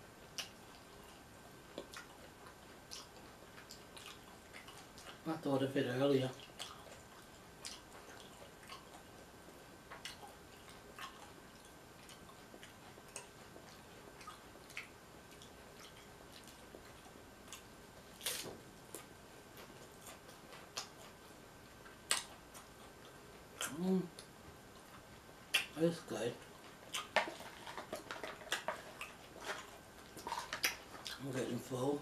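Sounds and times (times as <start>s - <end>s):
chewing crunchy food: 0.1s - 31.9s
person humming: 23.6s - 24.1s.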